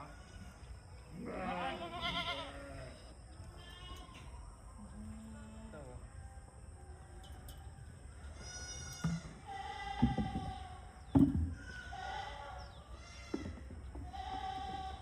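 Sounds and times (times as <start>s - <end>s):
goats bleating: 0.0s - 5.9s, 8.2s - 10.9s, 11.6s - 13.4s, 14.0s - 15.0s.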